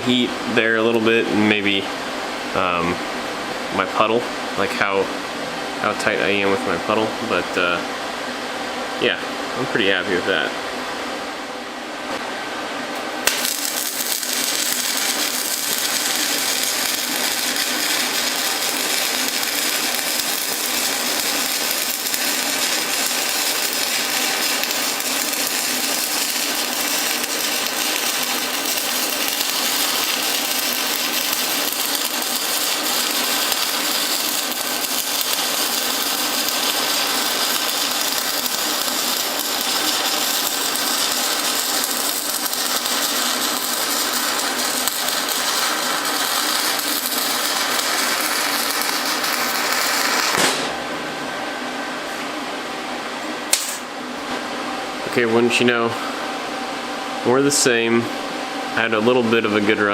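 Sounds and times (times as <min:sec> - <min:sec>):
welding arc crackling: 0:13.2 - 0:50.8, 0:53.5 - 0:53.9.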